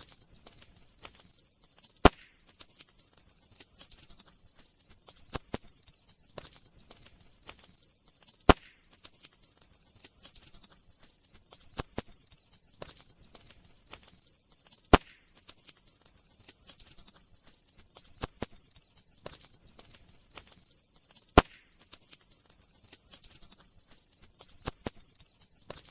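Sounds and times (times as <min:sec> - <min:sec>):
campfire pops: 0:00.0 - 0:03.0, 0:05.0 - 0:05.7, 0:06.4 - 0:09.4, 0:11.6 - 0:12.2, 0:12.8 - 0:15.8, 0:18.0 - 0:22.2, 0:24.4 - 0:25.9
faint steady hiss: 0:00.0 - 0:25.9.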